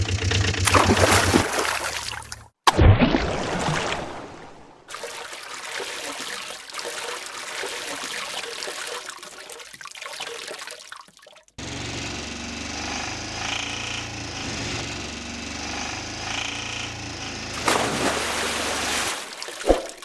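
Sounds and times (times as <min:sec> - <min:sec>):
water splashing and trickling: 0:00.6 - 0:11.6, 0:17.6 - 0:20.0.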